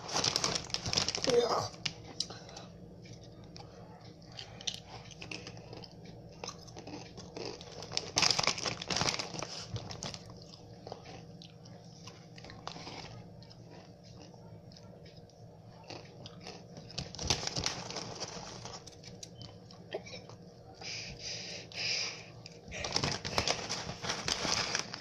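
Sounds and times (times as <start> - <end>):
person crunching chips: 0.0 - 2.3, 4.3 - 11.3, 15.9 - 19.3, 22.5 - 25.0.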